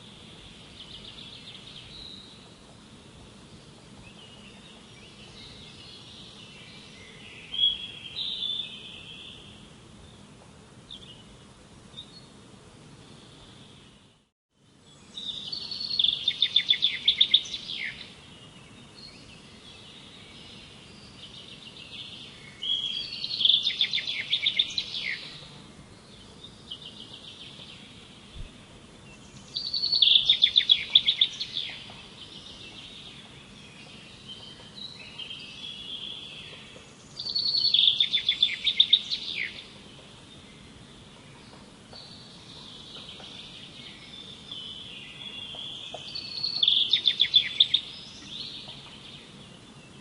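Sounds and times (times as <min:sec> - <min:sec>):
soft bird chirps: 0:13.0 - 0:50.0.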